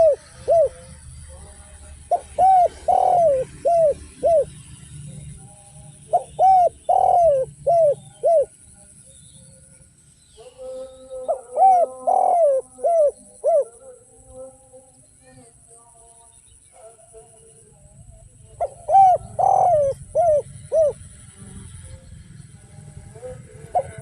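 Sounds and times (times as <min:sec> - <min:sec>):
dove cooing: 0:00.0 - 0:01.0, 0:01.9 - 0:05.2, 0:05.9 - 0:08.6, 0:10.5 - 0:14.0, 0:18.5 - 0:21.9, 0:23.3 - 0:24.0.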